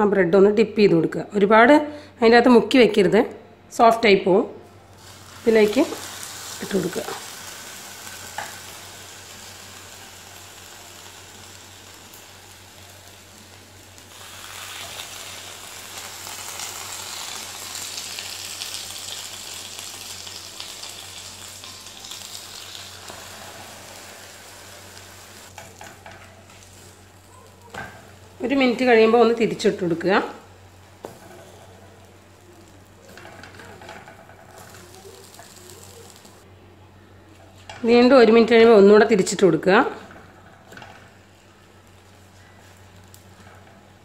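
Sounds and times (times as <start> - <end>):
bread frying in butter sizzling: 4.9 - 36.4, 40.3 - 44.0.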